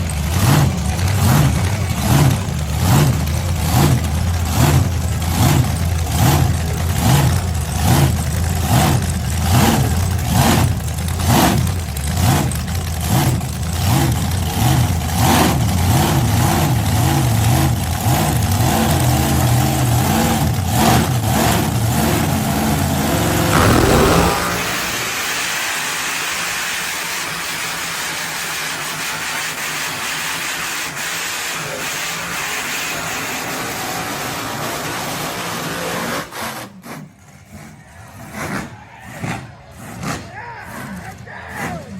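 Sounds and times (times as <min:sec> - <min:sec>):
supercharged engine loping and revving: 0:00.0 - 0:25.7.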